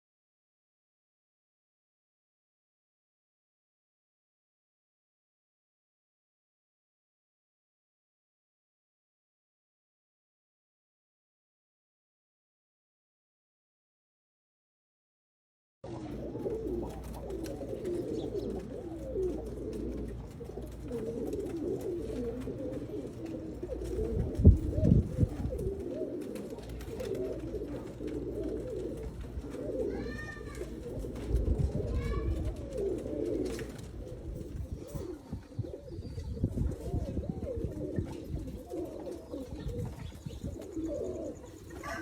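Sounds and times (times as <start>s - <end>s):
pigeons cooing: 15.9s - 42.0s.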